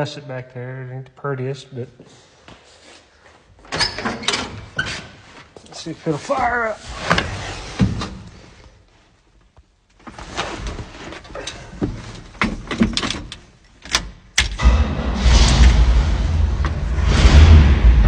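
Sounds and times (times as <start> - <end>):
clunks and knocks: 11.1 - 15.7
truck engine starting and running: 14.4 - 18.0.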